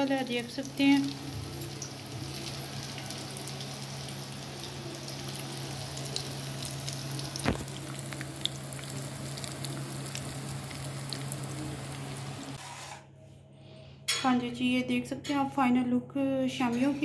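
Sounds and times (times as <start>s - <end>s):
food sizzling in hot oil: 0.0s - 12.6s.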